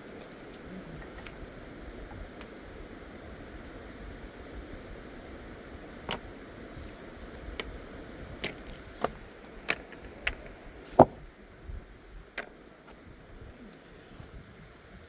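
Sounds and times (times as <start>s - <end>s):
steady background noise: 0.0s - 15.0s
sharp knocks: 11.0s - 11.2s.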